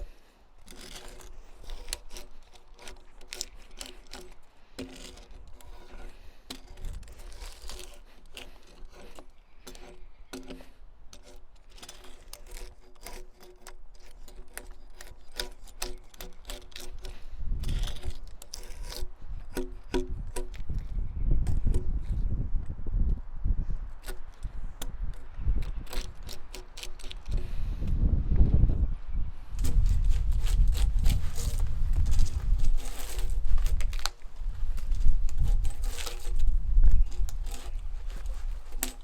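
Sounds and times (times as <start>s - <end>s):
bark being scraped off log: 0.0s - 22.2s, 24.0s - 27.8s, 29.6s - 39.0s
wind rumble on microphone: 17.0s - 18.3s, 19.0s - 26.4s, 27.0s - 39.0s.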